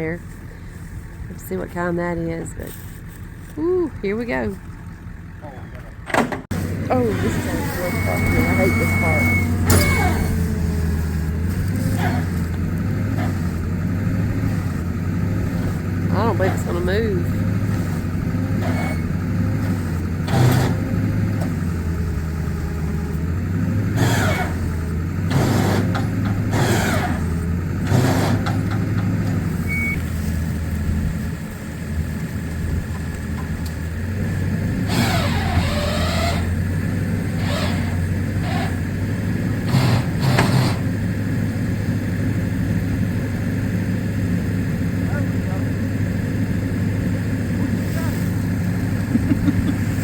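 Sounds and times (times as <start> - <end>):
vehicle engine under load: 0.0 - 50.0
short creaks and scrapes: 7.1 - 13.6, 34.9 - 36.6.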